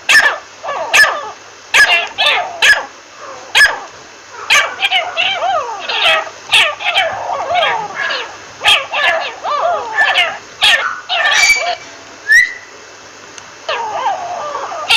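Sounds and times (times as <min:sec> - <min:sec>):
chattering wavering bird calls: 0:00.2 - 0:03.7, 0:04.3 - 0:12.8
francolin calling harsh notes: 0:04.6 - 0:12.8.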